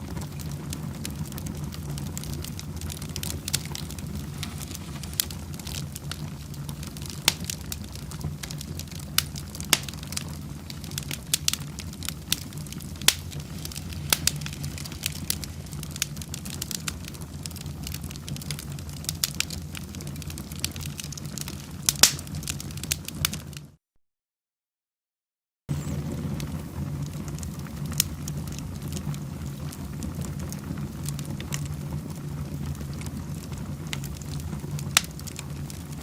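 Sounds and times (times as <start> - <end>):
fireplace fire crackling: 0.0 - 23.8, 25.7 - 36.0.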